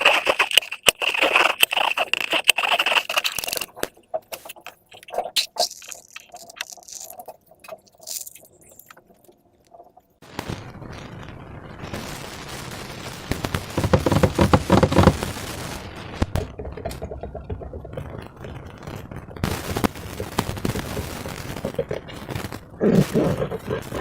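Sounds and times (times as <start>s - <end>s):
slime squished by hand: 0.0s - 9.0s.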